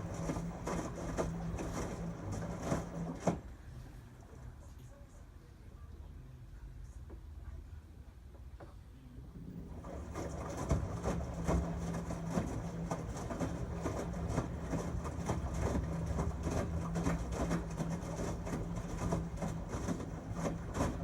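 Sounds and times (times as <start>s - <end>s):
washing machine motor hum: 0.0s - 4.6s, 9.2s - 21.0s.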